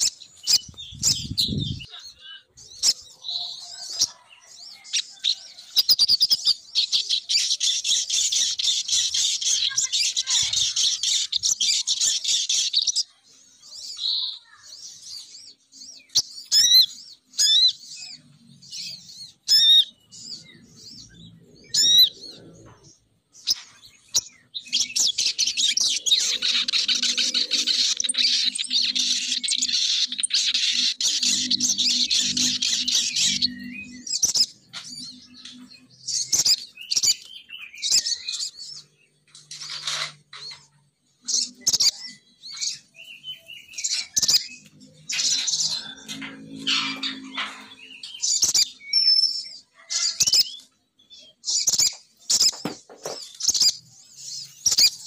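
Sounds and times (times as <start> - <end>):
bird chattering calls: 0.0 - 3.1
sharp bird chirps: 0.0 - 4.2, 15.2 - 22.6, 23.4 - 55.0.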